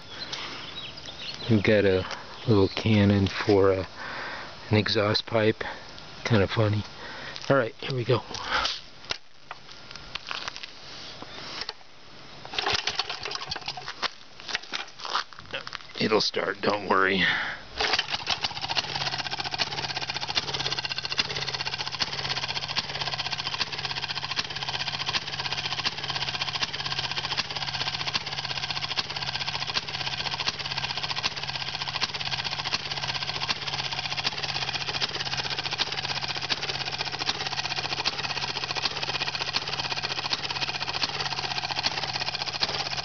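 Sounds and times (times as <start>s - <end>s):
two-stroke engine running: 12.5s - 14.8s, 17.8s - 43.0s.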